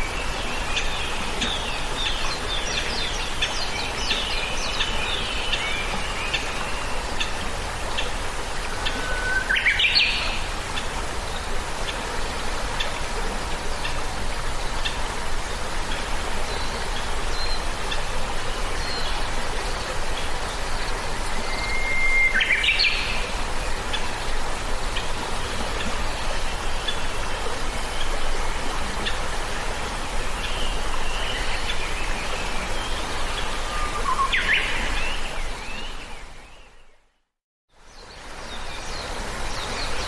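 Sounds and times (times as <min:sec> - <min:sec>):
steady hiss: 0:00.0 - 0:36.2
birds chirping and whistling: 0:21.5 - 0:23.1, 0:33.6 - 0:36.0.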